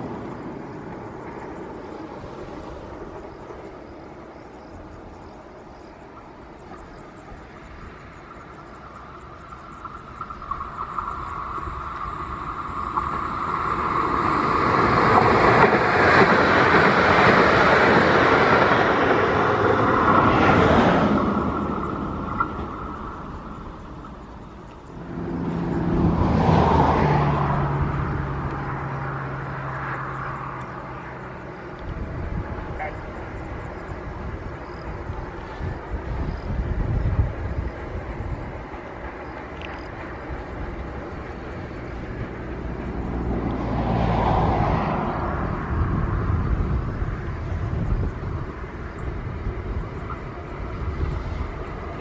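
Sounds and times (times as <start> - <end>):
freight train rumble: 0.0 - 52.0
passenger train passing with high whine: 0.0 - 52.0.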